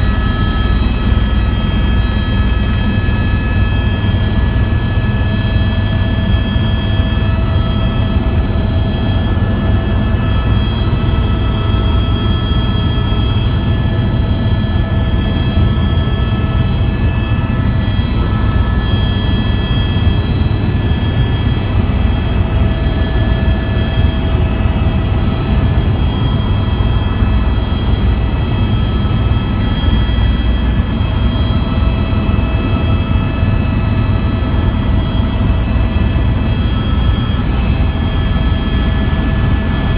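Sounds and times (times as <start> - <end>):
helicopter rotor and engine din: 0.0 - 39.9
high turbine whine: 0.0 - 39.9.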